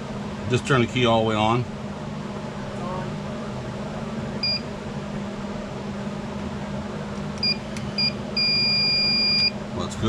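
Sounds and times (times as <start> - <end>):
long steady tone: 2.3 - 5.6, 7.4 - 9.7
circuit tester beeping: 4.4 - 4.7, 7.4 - 9.6.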